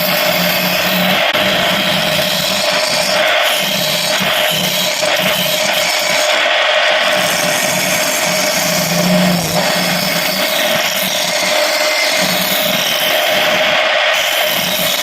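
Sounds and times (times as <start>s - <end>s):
lathe motor hum: 0.0s - 15.0s
tool cutting wood hiss: 0.0s - 15.0s.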